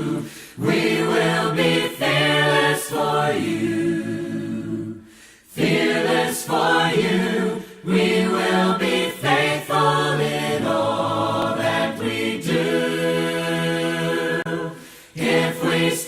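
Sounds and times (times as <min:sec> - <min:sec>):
choir singing a cappella: 0:00.0 - 0:16.0.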